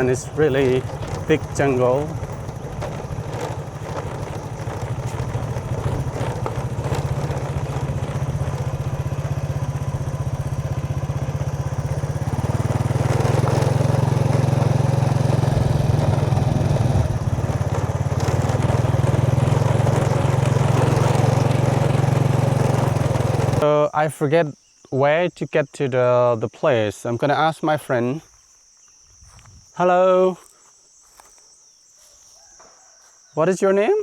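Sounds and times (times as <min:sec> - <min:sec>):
vehicle engine running: 0:00.0 - 0:23.6.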